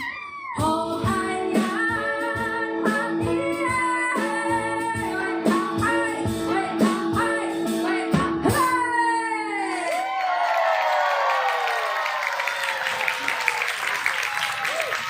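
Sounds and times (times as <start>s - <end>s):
woman singing: 0.0s - 9.9s.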